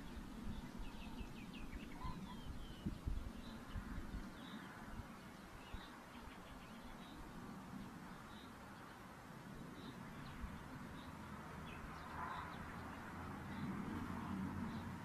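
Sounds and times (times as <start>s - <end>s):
owl chicks begging peeps: 1.8s - 2.9s.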